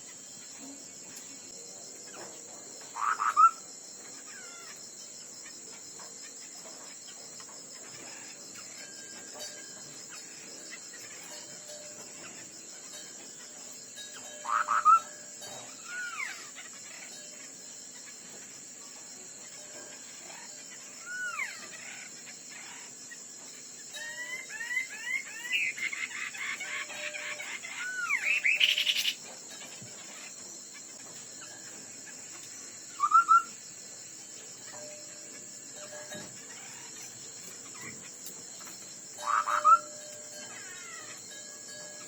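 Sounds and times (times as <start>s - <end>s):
high insect trill: 0.0s - 42.0s
bird whistling song: 3.0s - 3.6s, 14.2s - 15.2s, 24.0s - 26.2s, 26.9s - 29.2s, 32.9s - 33.6s, 39.2s - 40.7s.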